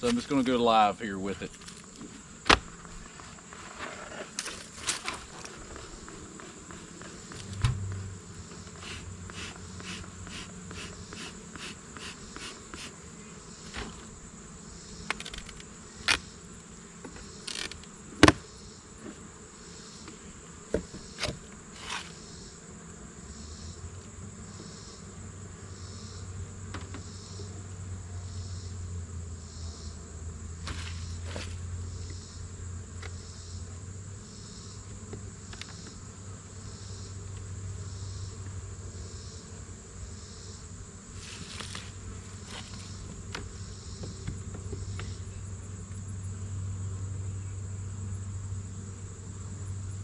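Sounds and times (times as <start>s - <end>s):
honeybee colony buzzing: 0.0s - 50.0s
knocks and clicks from beehive: 1.5s - 2.9s, 4.3s - 13.0s, 13.6s - 14.2s, 15.0s - 16.2s, 17.0s - 18.5s, 20.0s - 22.2s, 26.6s - 27.1s, 34.9s - 36.0s, 41.4s - 45.2s.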